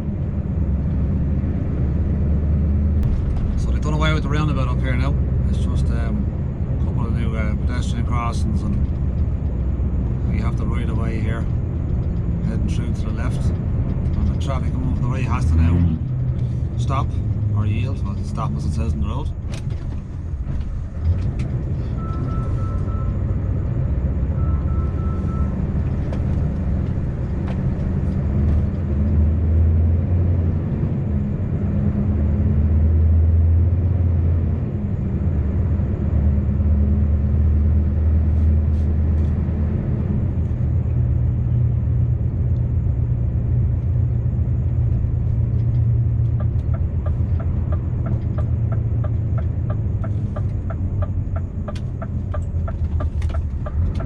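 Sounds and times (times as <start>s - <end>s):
truck engine drone: 0.0s - 54.0s
regular ticks: 45.6s - 54.0s.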